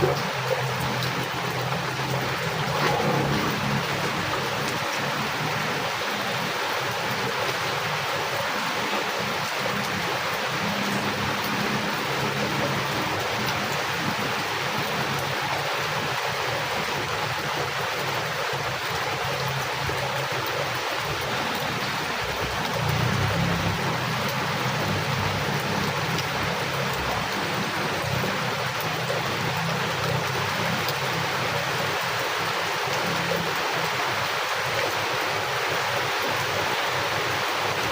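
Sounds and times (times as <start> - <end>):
heavy rain: 0.0 - 37.9.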